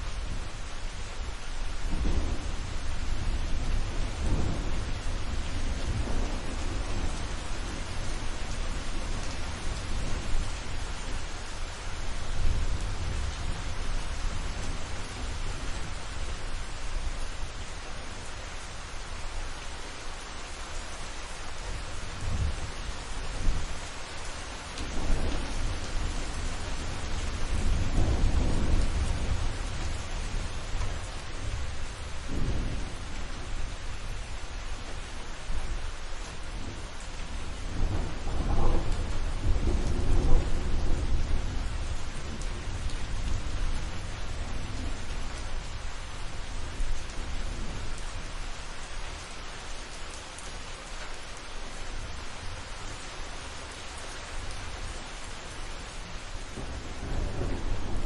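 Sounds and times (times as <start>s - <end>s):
rain hissing: 0.0s - 58.0s
rolling thunder: 1.9s - 10.6s, 24.8s - 34.3s, 37.5s - 45.0s, 56.5s - 58.0s.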